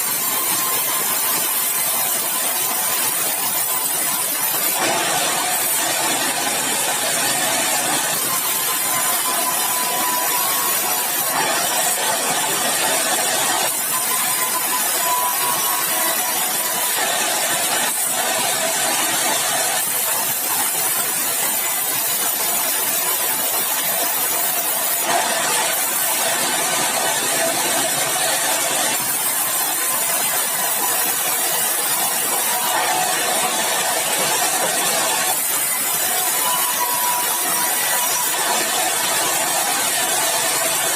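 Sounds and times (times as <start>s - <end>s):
saw cutting timber: 0.0s - 40.9s.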